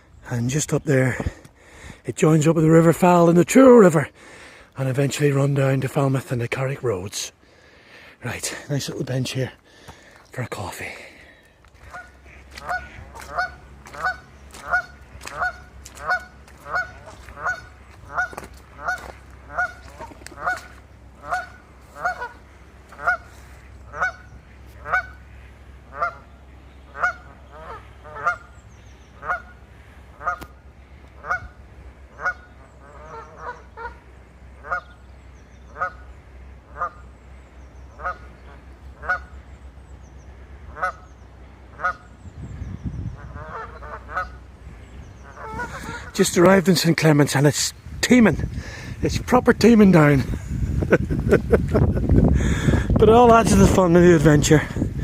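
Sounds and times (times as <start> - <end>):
goose honking: 11.8 - 42.2, 43.1 - 47.4.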